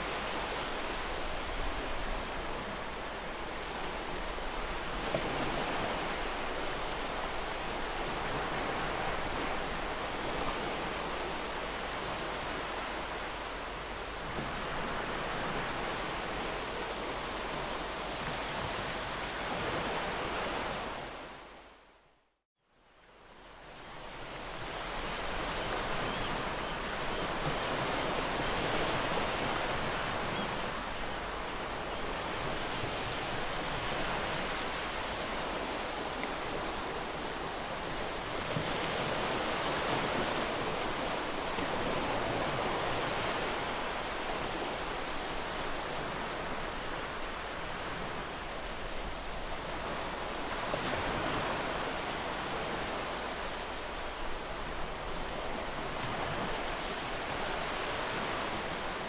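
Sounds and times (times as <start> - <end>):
ocean surf breaking on shore: 0.0 - 21.5, 23.6 - 59.0.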